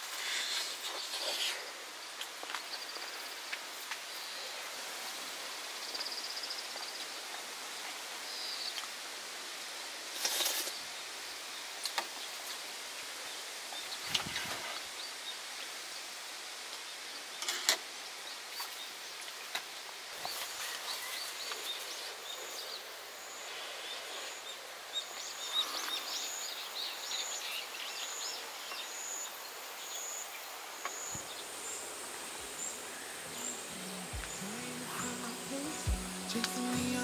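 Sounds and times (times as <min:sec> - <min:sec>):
background hiss: 0:00.0 - 0:37.0
small birds chirping: 0:16.8 - 0:37.0.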